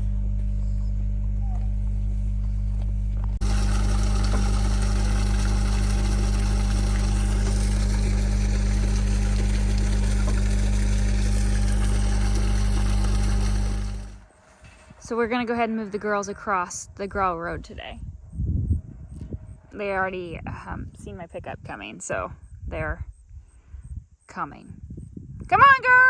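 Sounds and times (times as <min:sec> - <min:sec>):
vehicle engine humming: 0:00.0 - 0:14.5.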